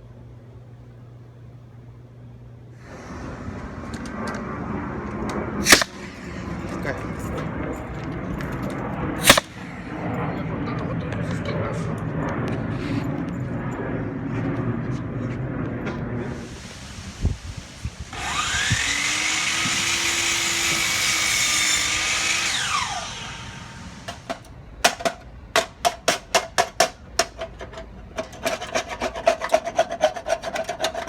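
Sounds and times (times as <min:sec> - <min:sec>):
power tool whine: 0:02.8 - 0:06.6, 0:16.3 - 0:24.5.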